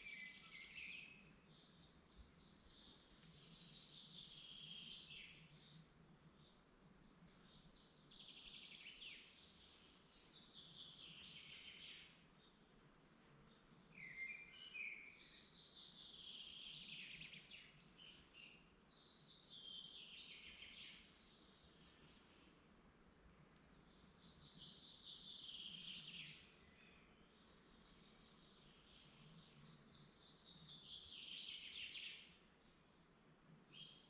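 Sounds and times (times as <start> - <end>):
faint birdsong: 0.0 - 34.0
bird chirps: 13.8 - 22.4, 23.7 - 32.4.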